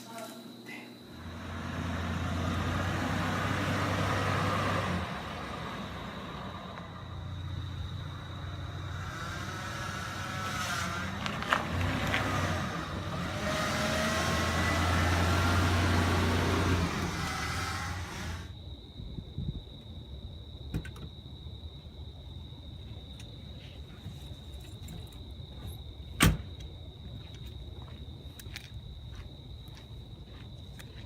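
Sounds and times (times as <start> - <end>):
car engine hum: 1.1 - 18.6.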